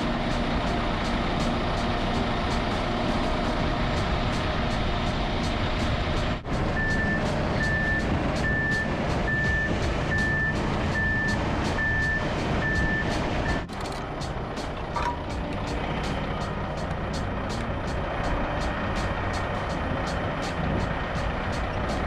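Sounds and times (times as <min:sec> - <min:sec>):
diesel truck engine running: 0:00.0 - 0:22.0
reversing alarm beeping: 0:06.8 - 0:13.7.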